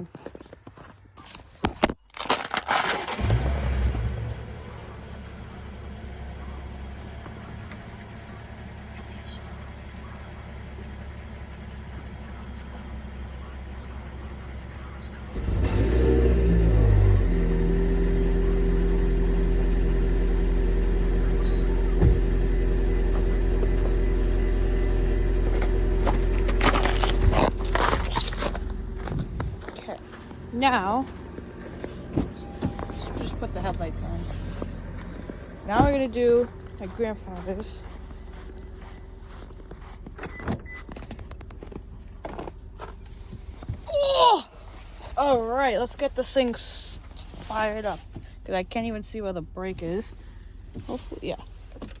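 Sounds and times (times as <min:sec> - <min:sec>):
car engine starter cranking: 0:02.3 - 0:06.0, 0:15.2 - 0:37.7, 0:38.6 - 0:43.6
engine starting: 0:02.4 - 0:04.8, 0:15.2 - 0:17.7
car engine idling: 0:02.7 - 0:52.0.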